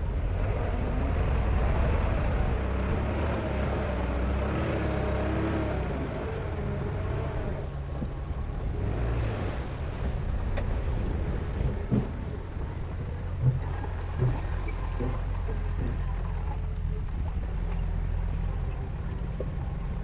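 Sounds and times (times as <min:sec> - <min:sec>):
diesel engine rumbling: 0:00.0 - 0:20.0
dull thuds: 0:10.0 - 0:16.4.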